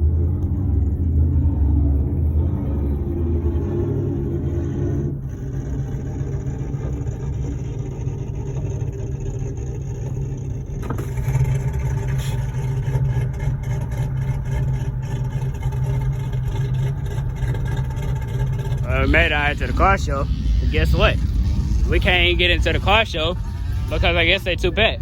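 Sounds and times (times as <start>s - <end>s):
car engine and road hum: 0.0s - 25.0s
crackles: 5.2s - 25.0s.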